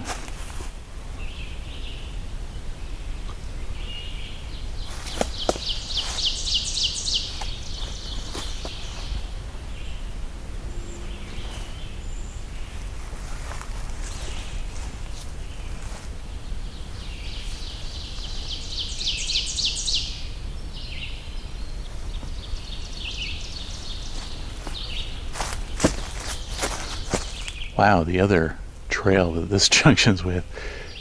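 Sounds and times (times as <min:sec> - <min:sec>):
faint bird calls: 0:01.2 - 0:28.4, 0:29.0 - 0:31.0
songbird high trill: 0:03.8 - 0:13.0, 0:17.0 - 0:21.7.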